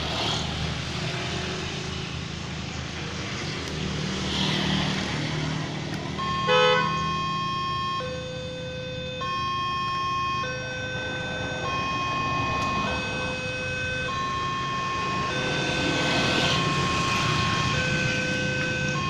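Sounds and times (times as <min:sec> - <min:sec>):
level crossing two-tone alarm: 0:06.2 - 0:19.0
rushing noise: 0:10.5 - 0:19.0.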